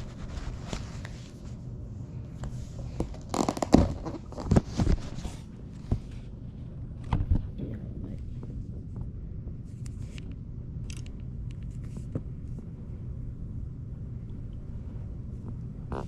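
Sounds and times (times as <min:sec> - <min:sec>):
handling rustling and scraping: 0:00.0 - 0:01.6, 0:02.4 - 0:06.4
low steady hum: 0:00.0 - 0:16.0.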